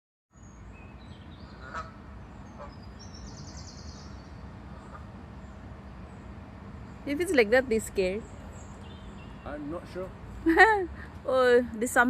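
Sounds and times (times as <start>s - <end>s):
geese honking: 1.5s - 2.0s, 4.7s - 5.2s.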